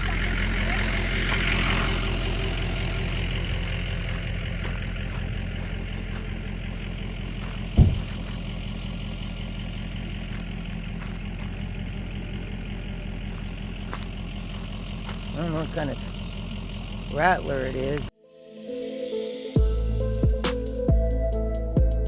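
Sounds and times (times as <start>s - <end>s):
car engine idling: 0.0s - 18.1s
heavy thump: 7.8s - 8.3s.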